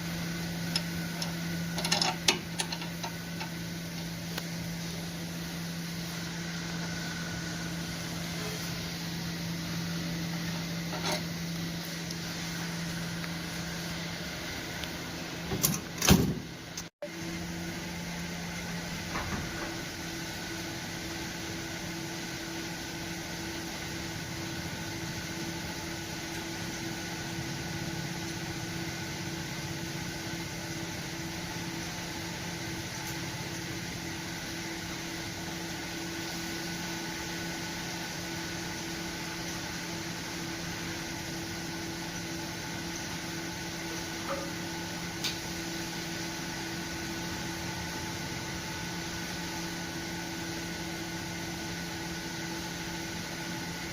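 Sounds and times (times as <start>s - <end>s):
steady mechanical hum: 0.0s - 53.9s.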